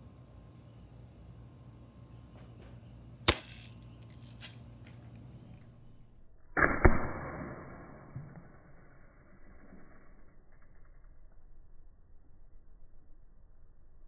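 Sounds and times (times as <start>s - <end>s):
bb gun firing: 3.3s - 4.6s, 6.6s - 8.2s.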